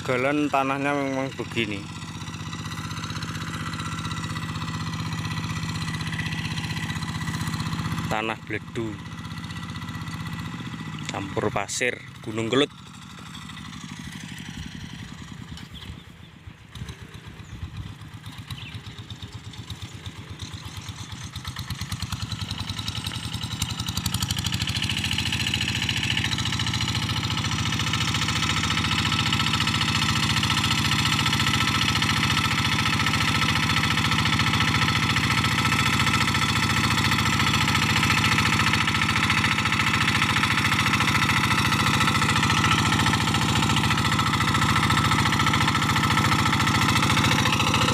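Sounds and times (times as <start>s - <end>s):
hand tractor diesel engine running: 0.0s - 47.9s
engine knocks: 12.8s - 47.9s.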